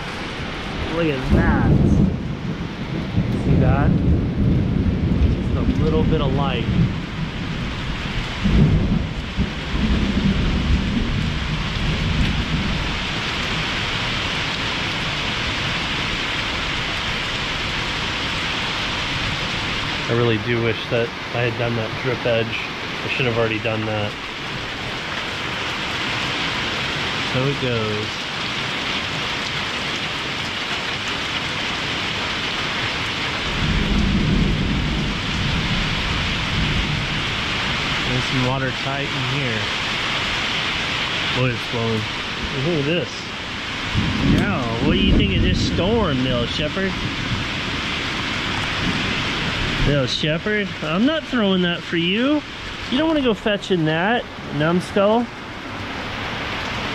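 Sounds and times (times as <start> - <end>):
heavy rain pouring: 0.0 - 56.9
thunder rumbling: 0.0 - 56.9.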